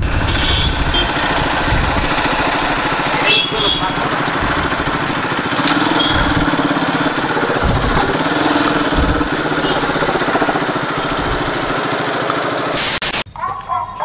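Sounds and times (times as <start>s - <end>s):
wind buffeting microphone: 0.0s - 3.2s, 3.9s - 11.8s
motorcycle engine running: 0.0s - 13.2s.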